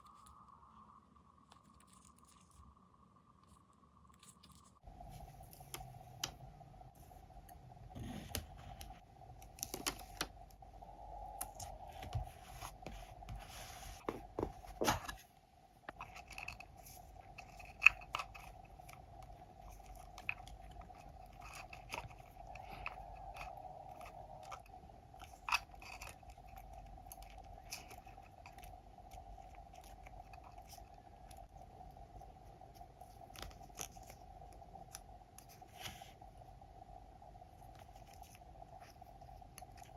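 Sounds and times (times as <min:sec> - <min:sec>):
faint steady hum: 0:00.0 - 0:39.9
paper rustling and crinkling: 0:11.6 - 0:15.3.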